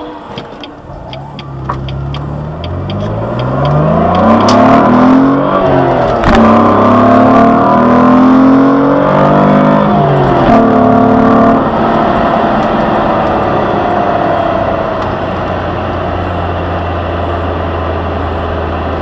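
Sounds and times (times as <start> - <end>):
car engine accelerating hard: 0.0 - 19.0
light regular ticking: 0.4 - 4.7.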